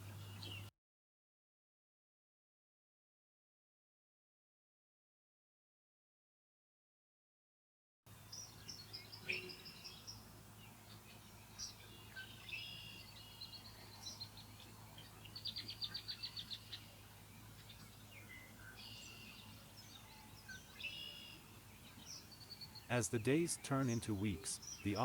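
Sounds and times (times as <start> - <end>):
faint bird calls: 8.2 - 25.0.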